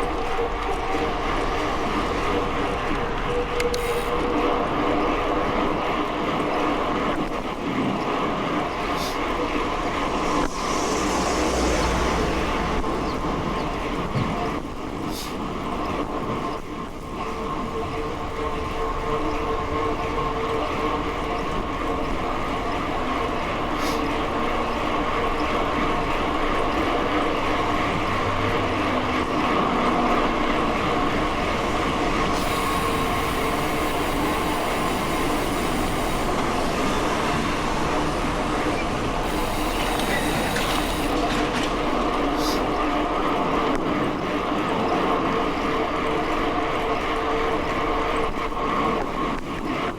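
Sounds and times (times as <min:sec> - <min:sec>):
bicycle tyres rolling: 0:00.0 - 0:49.9
hiss: 0:08.8 - 0:13.9, 0:15.0 - 0:15.5, 0:23.5 - 0:25.5, 0:31.6 - 0:41.4, 0:42.2 - 0:42.8.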